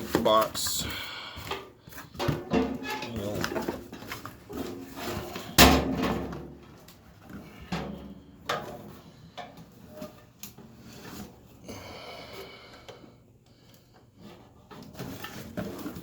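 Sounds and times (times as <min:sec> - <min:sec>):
scrapes: 0:00.0 - 0:06.3.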